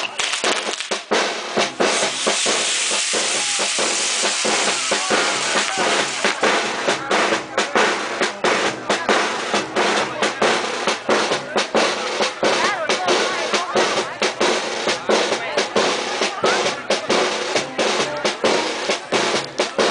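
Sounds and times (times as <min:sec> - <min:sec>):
hiss of firework sparks: 0:00.0 - 0:06.6
fireworks popping and banging: 0:00.0 - 0:09.4, 0:18.0 - 0:19.9.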